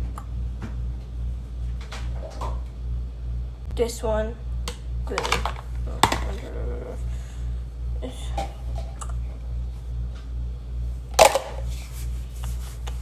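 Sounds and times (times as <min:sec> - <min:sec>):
steady low hum: 0:00.0 - 0:13.0
dishes clicking and clattering: 0:05.1 - 0:06.5.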